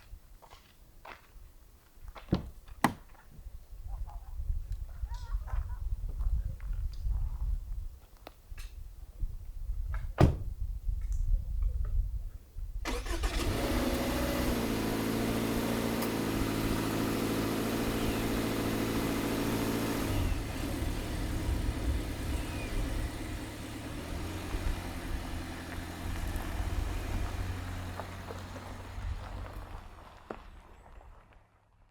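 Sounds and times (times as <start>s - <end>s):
car engine starting and idling: 12.8s - 31.1s.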